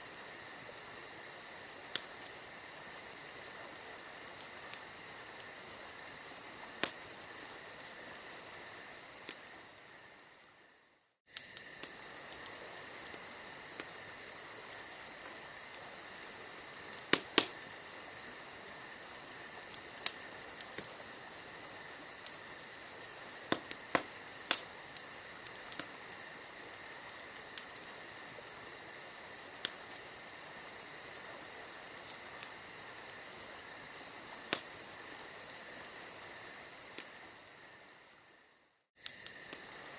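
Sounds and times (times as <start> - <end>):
campfire crackling and popping: 0.0 - 10.6, 11.3 - 39.9
crickets chirping: 0.0 - 39.9.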